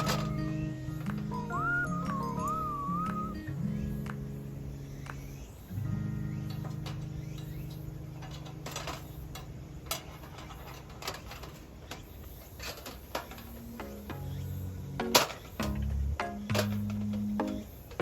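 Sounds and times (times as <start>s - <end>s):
acoustic guitar: 0.0s - 11.5s.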